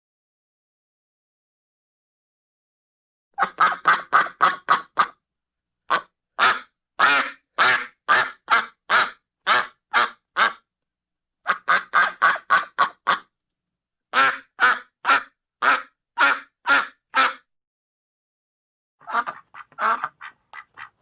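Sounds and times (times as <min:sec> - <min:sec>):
duck quacking: 0:03.4 - 0:05.2, 0:05.9 - 0:10.6, 0:11.5 - 0:13.3, 0:14.1 - 0:17.5, 0:19.0 - 0:21.0.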